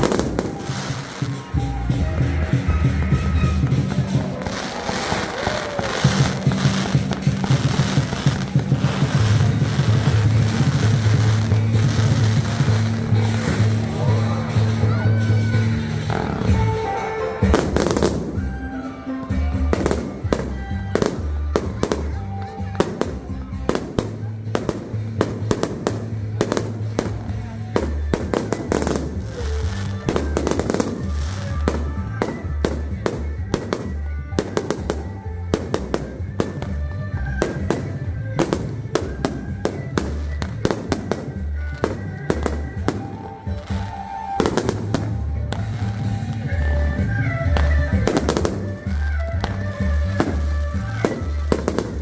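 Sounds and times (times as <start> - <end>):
fireworks bangs and crackles: 0.0 - 52.0
music playing: 0.0 - 52.0.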